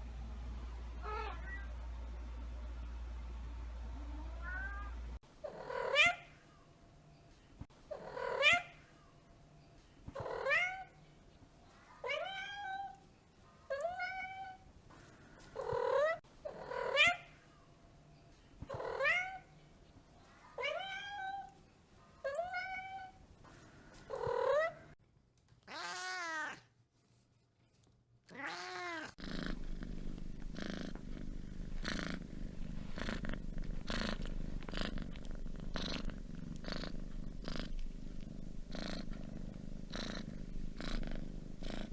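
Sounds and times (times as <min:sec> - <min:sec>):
cat meowing: 0:04.3 - 0:05.0, 0:25.7 - 0:26.6, 0:28.3 - 0:29.2
cat purring: 0:29.0 - 0:41.9.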